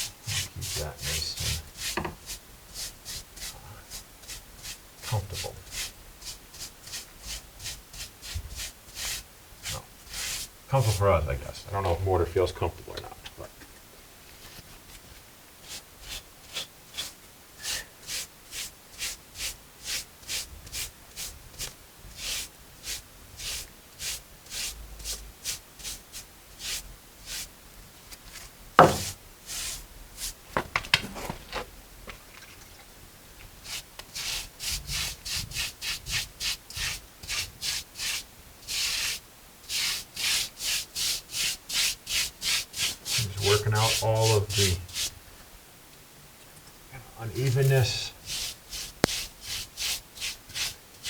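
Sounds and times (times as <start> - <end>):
brush scrubbing mortar: 0.0 - 11.2, 15.6 - 27.5, 28.2 - 30.4, 33.6 - 45.2, 47.2 - 51.0
sharp knock: 28.8 - 29.2.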